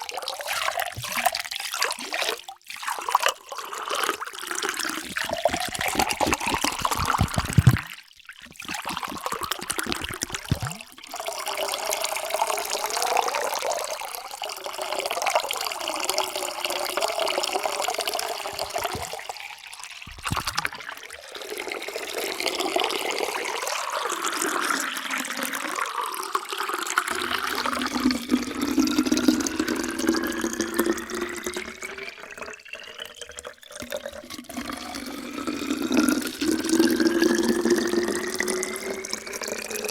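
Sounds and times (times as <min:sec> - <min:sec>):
rising tone of filling vessel: 0:00.0 - 0:39.9
water pouring into a vessel: 0:00.0 - 0:39.9.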